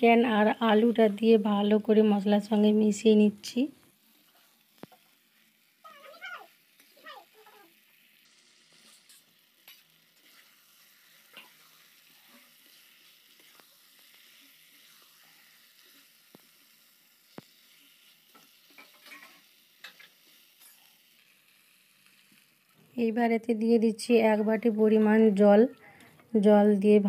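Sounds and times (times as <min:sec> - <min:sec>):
food sizzling in a pan: 0:00.0 - 0:26.9
metal spatula scraping a pan: 0:08.7 - 0:16.2, 0:17.7 - 0:21.0.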